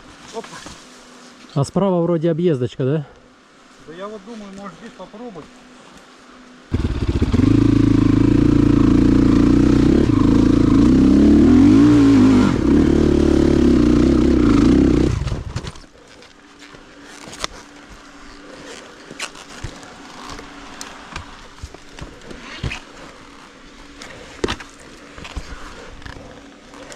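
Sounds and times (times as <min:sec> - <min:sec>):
dirt motorcycle engine revving: 0:06.7 - 0:15.9.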